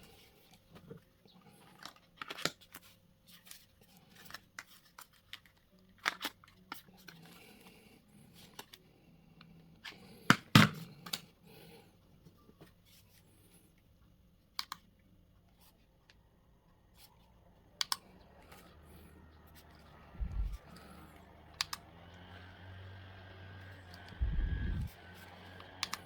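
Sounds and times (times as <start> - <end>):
faint low hum: 10.8 - 26.0
plastic clicks of handheld fan: 21.5 - 21.9, 25.5 - 26.0.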